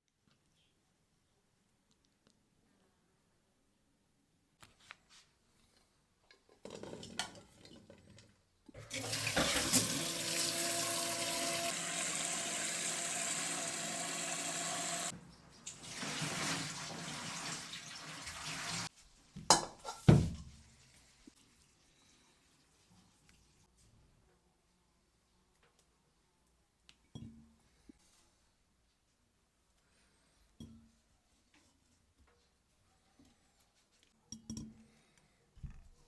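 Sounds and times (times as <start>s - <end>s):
tap water running into sink: 8.8s - 18.9s.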